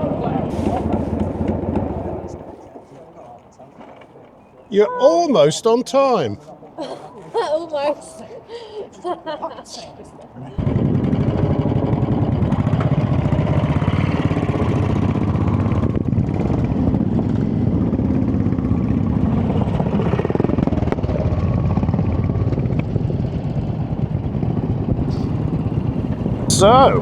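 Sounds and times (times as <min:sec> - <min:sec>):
motorcycle engine idling: 0:00.1 - 0:02.7, 0:10.6 - 0:27.0.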